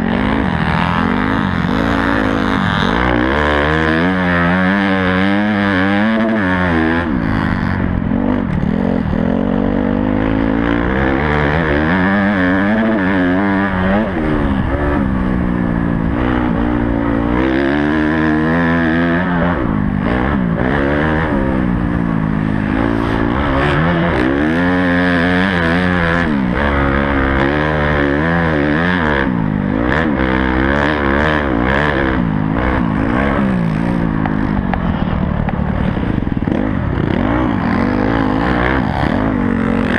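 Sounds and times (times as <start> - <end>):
dirt bike engine revving: 0.0 - 39.9
low rumble: 19.5 - 28.0.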